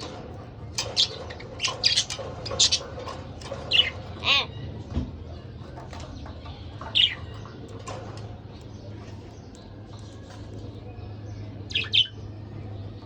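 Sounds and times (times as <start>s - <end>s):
soft continuous chattering: 0.0s - 13.0s
budgerigars chirping: 0.8s - 2.9s, 11.7s - 12.2s.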